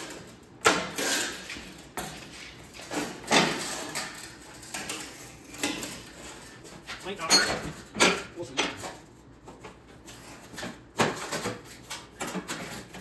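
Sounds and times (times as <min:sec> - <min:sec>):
sheet steel clanking and rattling: 0:00.0 - 0:09.2.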